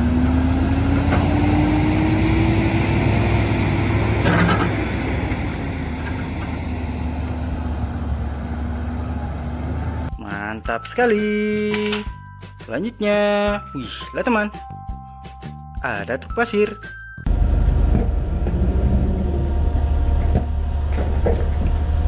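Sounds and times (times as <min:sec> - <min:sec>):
diesel engine rumbling: 0:00.0 - 0:10.2, 0:17.2 - 0:22.0
rising whine: 0:17.3 - 0:22.0.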